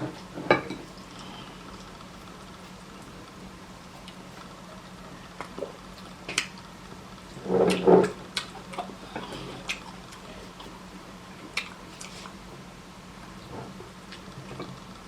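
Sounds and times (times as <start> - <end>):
steady low hum: 0.0 - 15.0
chewing and lip-smacking: 7.7 - 12.5.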